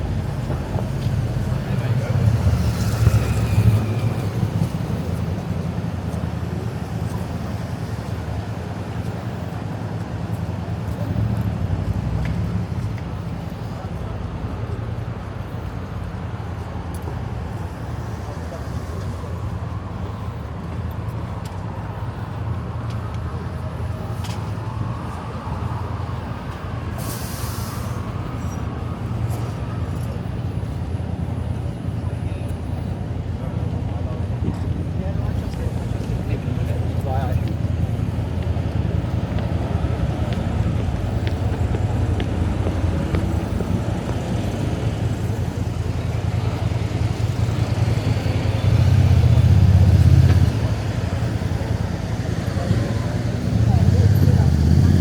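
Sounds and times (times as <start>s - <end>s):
road traffic rumble: 0.0s - 55.0s
air brakes hissing: 26.9s - 28.6s
vehicle passing close: 42.1s - 55.0s.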